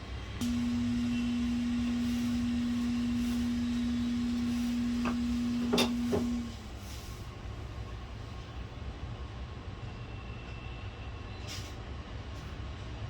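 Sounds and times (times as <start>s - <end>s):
low electrical hum: 0.0s - 6.7s.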